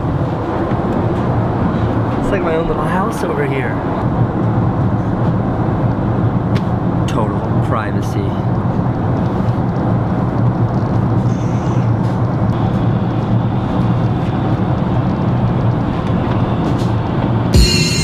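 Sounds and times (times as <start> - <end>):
jet engines and airflow rumble: 0.0 - 18.0
music with a beat: 17.6 - 18.0.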